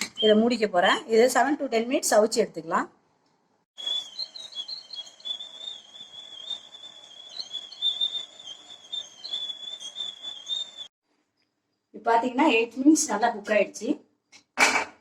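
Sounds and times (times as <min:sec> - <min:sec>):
steamer whistling: 0:03.8 - 0:10.9.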